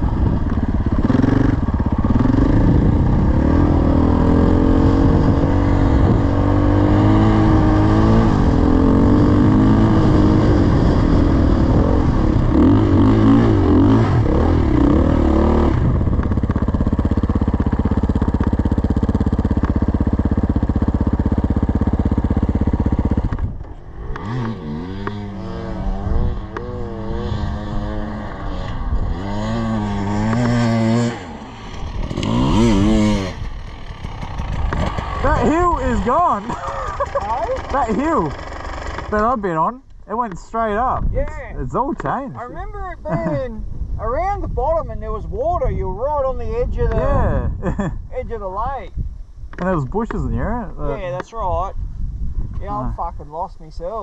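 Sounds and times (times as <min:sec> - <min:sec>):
dirt bike engine revving: 0:00.0 - 0:39.7.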